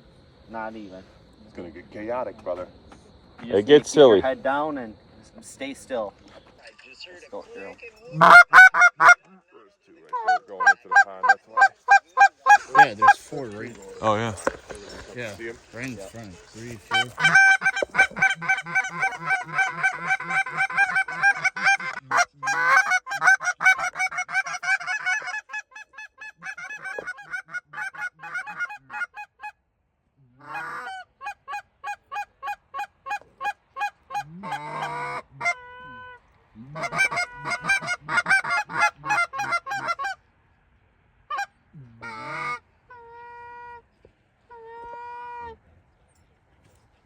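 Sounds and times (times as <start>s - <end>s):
geese honking: 7.6s - 9.3s, 10.0s - 29.5s, 30.4s - 40.2s, 41.3s - 43.8s.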